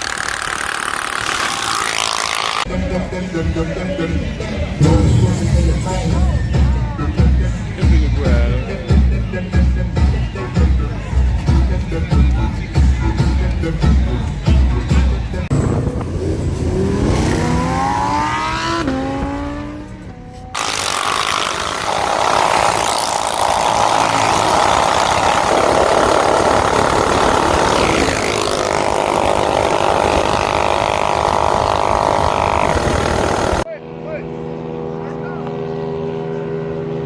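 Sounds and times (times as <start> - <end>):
minibike engine revving: 0.0 - 2.7, 15.5 - 33.7.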